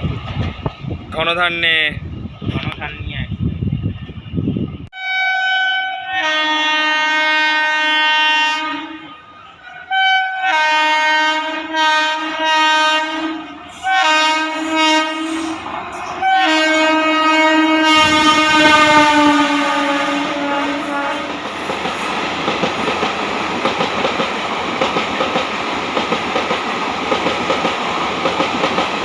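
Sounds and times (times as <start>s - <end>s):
two-tone locomotive horn: 4.9s - 21.7s.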